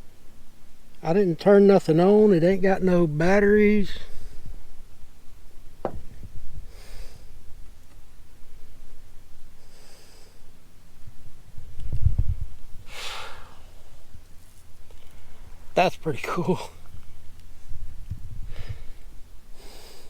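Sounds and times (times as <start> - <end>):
person breathing softly: 4.0 - 4.6, 6.6 - 7.4, 9.5 - 10.5, 12.8 - 14.1, 18.4 - 20.0.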